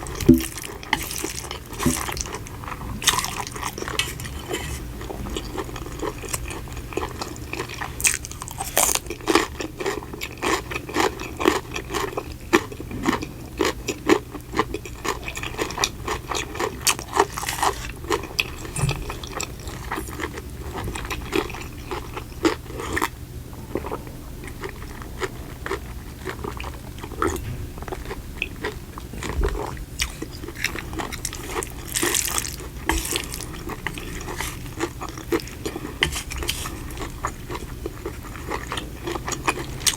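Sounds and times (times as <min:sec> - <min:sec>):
chewing crunchy food: 0:00.0 - 0:39.9.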